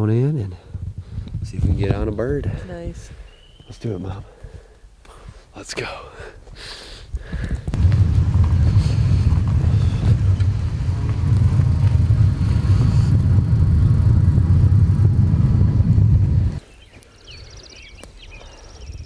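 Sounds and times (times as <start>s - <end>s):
wind buffeting microphone: 0.0s - 5.4s, 7.1s - 16.6s, 17.2s - 19.0s
bike tyres rolling: 7.5s - 16.6s.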